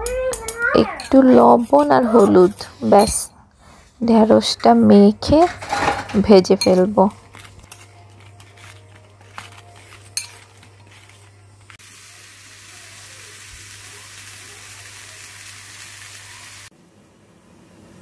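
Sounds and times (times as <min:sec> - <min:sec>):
okra sizzling in a pan: 0:09.8 - 0:16.8.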